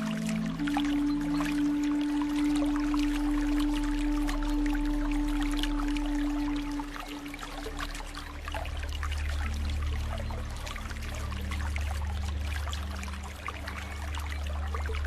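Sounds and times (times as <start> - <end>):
soft ambient music: 0.0 - 15.0
stream water trickling: 0.0 - 15.0.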